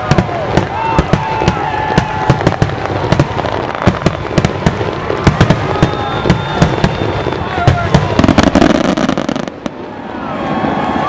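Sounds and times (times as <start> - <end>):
fireworks bursting with sharp bangs: 0.0 - 11.0.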